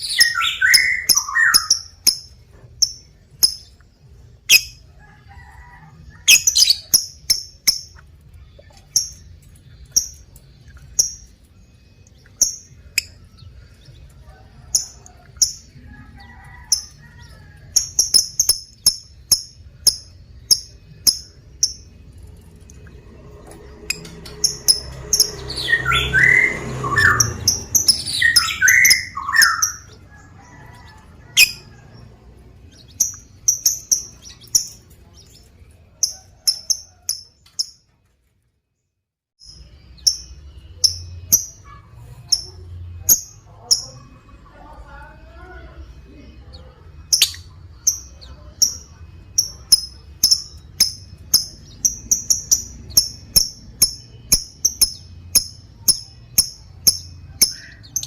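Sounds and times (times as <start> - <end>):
lovebird squawking: 0.0 - 2.1, 6.3 - 7.2
lovebird chirping: 0.0 - 4.8, 6.2 - 23.0, 23.8 - 37.8, 39.4 - 44.9, 45.8 - 58.0.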